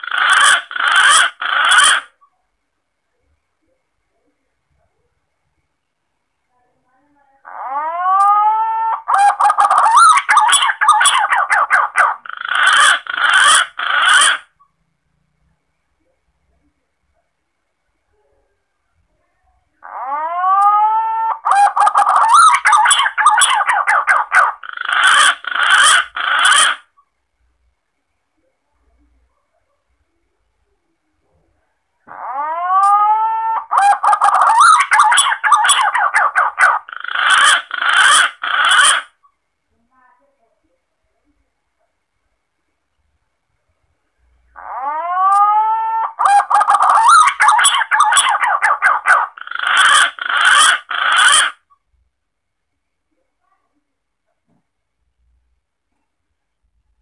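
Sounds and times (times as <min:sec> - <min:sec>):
pigeon calls: 0:00.0 - 0:02.2, 0:07.5 - 0:14.6, 0:19.8 - 0:26.9, 0:32.1 - 0:39.2, 0:44.5 - 0:51.8.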